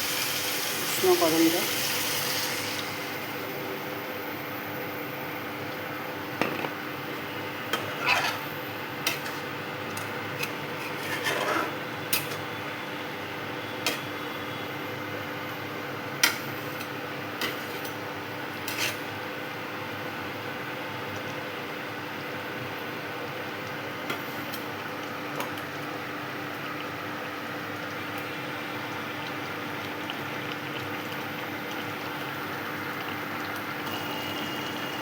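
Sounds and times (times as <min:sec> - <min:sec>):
spoon scraping pan: 0:07.7 - 0:08.5, 0:10.4 - 0:12.4, 0:18.7 - 0:19.0.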